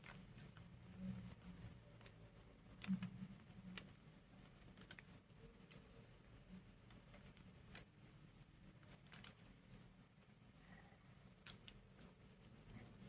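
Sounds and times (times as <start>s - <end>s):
paper clicks and ticks: 0.0s - 6.0s
low room hum: 0.0s - 13.0s.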